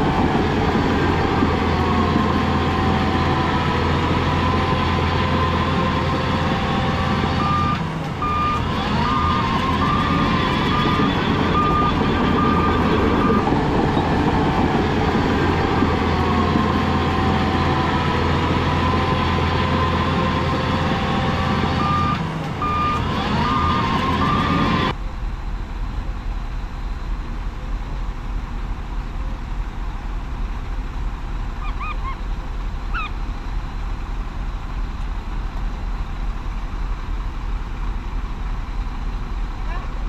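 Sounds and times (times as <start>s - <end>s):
diesel engine running: 0.0s - 40.0s
machine whine: 0.0s - 40.0s
back-up alarm beeping: 0.9s - 24.9s.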